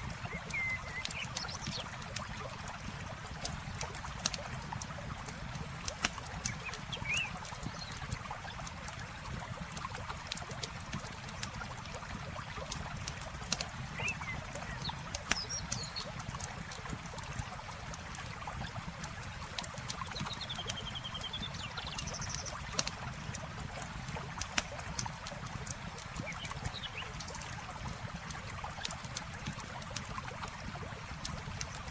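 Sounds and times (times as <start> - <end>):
river water flowing: 0.0 - 31.9
birds chirping: 0.1 - 1.9, 6.4 - 8.0, 13.9 - 16.1, 20.1 - 22.7
campfire crackling: 21.5 - 31.9.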